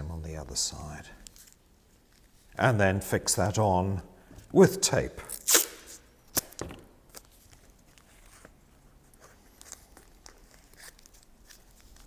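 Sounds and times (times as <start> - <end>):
tape crinkling and ticking: 1.1 - 2.6, 6.3 - 12.0.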